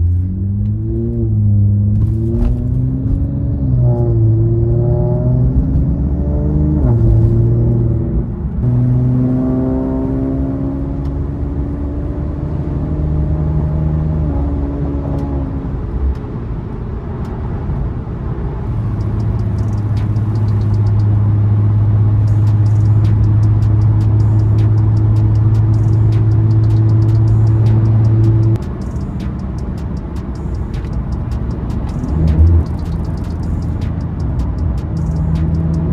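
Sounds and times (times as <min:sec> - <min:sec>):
car engine running: 0:18.6 - 0:35.9.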